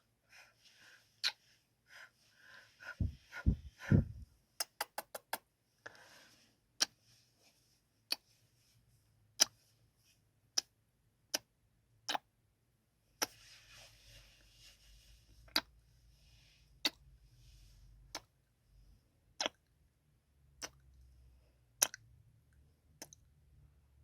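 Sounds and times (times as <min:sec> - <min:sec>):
soft breathing: 0:00.2 - 0:04.3, 0:05.8 - 0:08.8
lip smacks: 0:03.0 - 0:05.4, 0:19.4 - 0:19.6, 0:20.6 - 0:20.8, 0:21.8 - 0:22.0.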